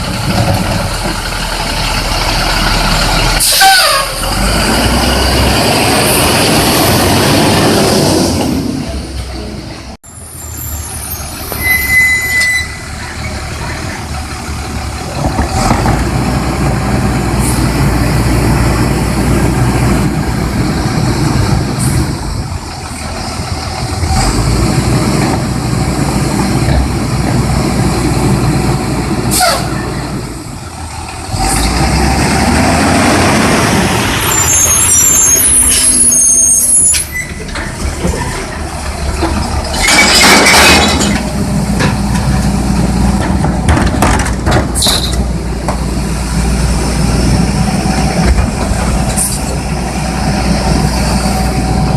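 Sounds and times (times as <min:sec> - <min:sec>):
truck diesel engine revving: 0:00.0 - 0:09.6, 0:12.8 - 0:36.8, 0:37.5 - 0:51.9
air brakes hissing: 0:29.3 - 0:29.8.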